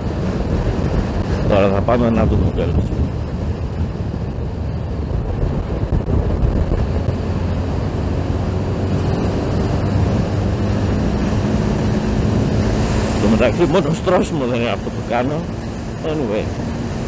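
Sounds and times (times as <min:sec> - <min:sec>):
wind rush on microphone: 0:00.0 - 0:17.0
motorcycle engine at high revs: 0:05.9 - 0:17.0.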